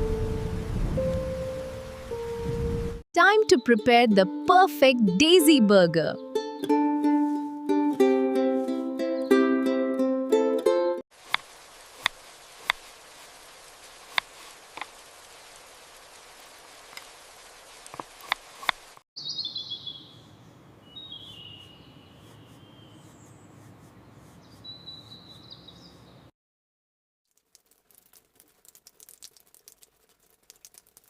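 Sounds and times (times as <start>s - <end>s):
hiss with sharp pops: 11.1s - 15.3s, 16.8s - 19.0s
birds chirping: 19.2s - 26.3s.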